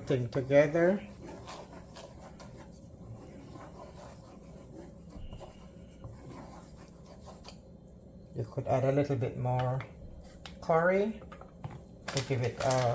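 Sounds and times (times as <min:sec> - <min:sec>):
utensil scraping a pot: 0:00.0 - 0:07.6.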